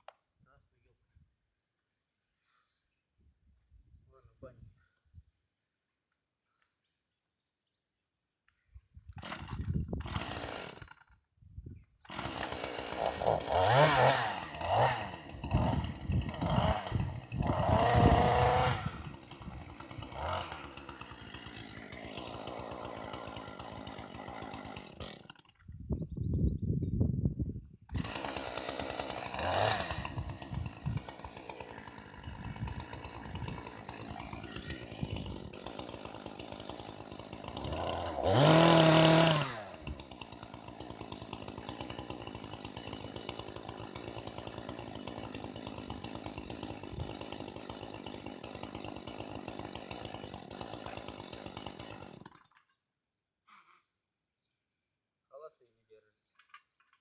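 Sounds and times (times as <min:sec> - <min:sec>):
chainsaw running and idling: 0:09.2 - 0:11.3, 0:12.0 - 0:25.8, 0:27.9 - 0:52.7.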